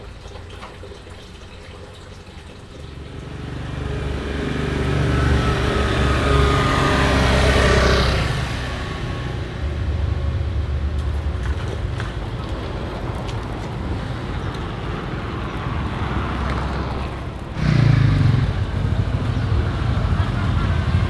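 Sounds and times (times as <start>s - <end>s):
vehicle engine humming: 2.8s - 21.0s.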